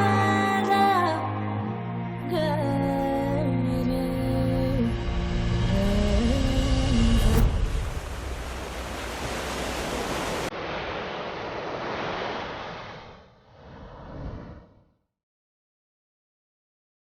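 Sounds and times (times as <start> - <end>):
waves breaking: 7.4 - 14.5.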